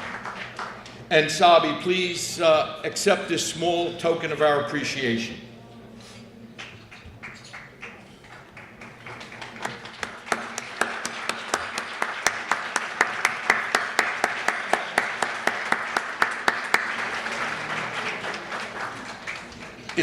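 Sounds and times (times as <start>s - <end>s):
audience applause: 0.0s - 1.0s, 6.6s - 20.0s
close sharp hand claps: 6.6s - 20.0s.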